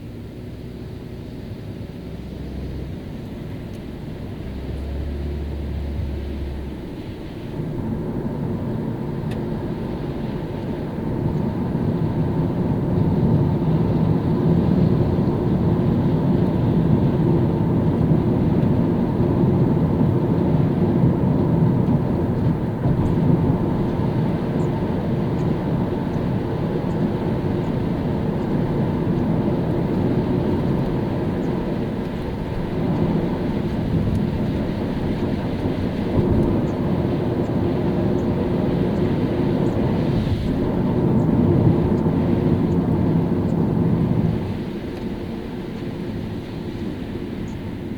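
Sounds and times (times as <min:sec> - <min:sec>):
car engine: 0:00.0 - 0:47.9
tyres on wet road: 0:00.2 - 0:47.9.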